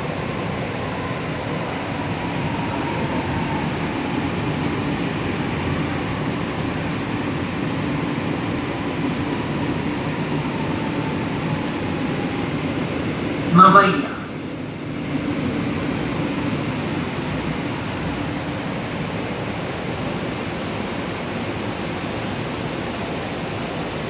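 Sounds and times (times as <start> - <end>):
train running rumble: 14.4 - 24.0.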